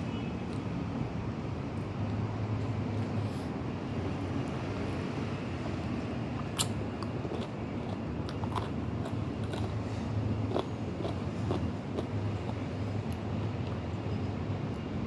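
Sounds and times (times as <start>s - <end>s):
low background hum: 0.0s - 15.0s
chewing and biting crunches: 6.3s - 14.0s.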